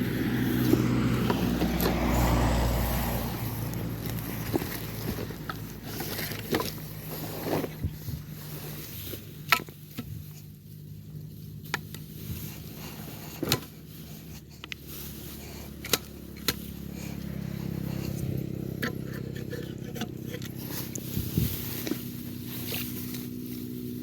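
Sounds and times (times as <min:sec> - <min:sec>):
engine running: 0:00.0 - 0:24.0
knocks and scrapes in wet ground: 0:00.0 - 0:24.0.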